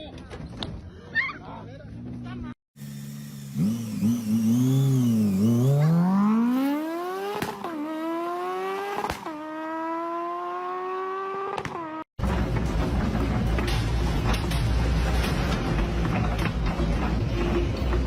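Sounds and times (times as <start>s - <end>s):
car engine revving and accelerating: 2.9s - 12.1s.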